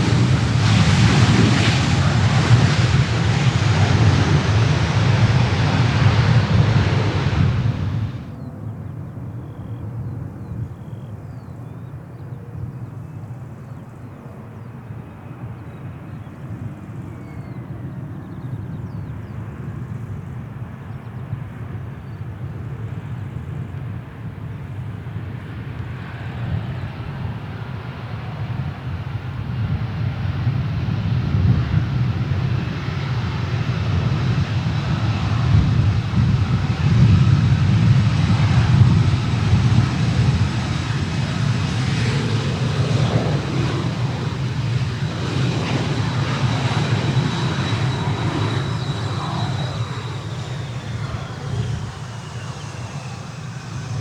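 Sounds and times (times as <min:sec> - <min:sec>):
jet engines rumbling: 0:00.0 - 0:09.3, 0:13.3 - 0:54.0.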